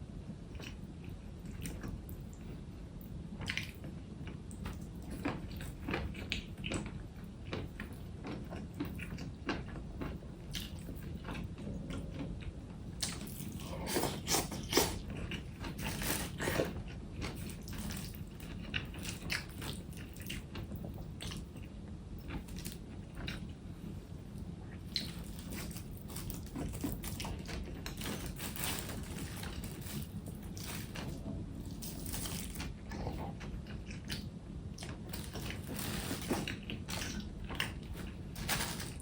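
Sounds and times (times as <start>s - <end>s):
wet chewing: 24.7s - 39.0s.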